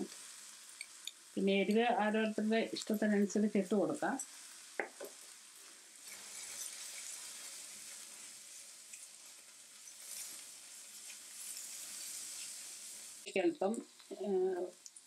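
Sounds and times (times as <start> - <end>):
vegetables sizzling in oil: 0.0 - 15.0
spatula stirring in wok: 4.2 - 13.3.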